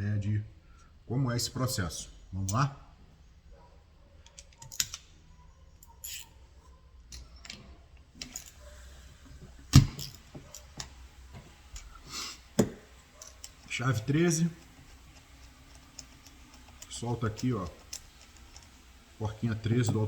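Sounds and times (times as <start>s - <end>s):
hand tools clinking: 5.9s - 6.3s, 8.2s - 8.8s, 9.8s - 13.8s.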